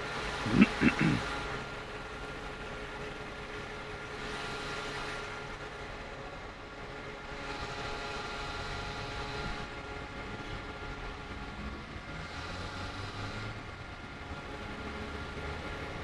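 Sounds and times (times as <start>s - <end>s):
road or wind noise: 7.3s - 16.0s.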